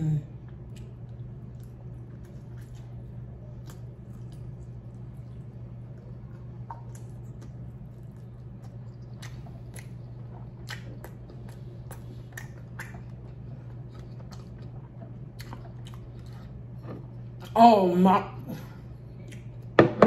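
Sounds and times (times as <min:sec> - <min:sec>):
steady low hum: 0:00.0 - 0:20.0
chewing and biting ribs: 0:00.4 - 0:17.5
wet mouth clicks and smacks: 0:11.9 - 0:13.2.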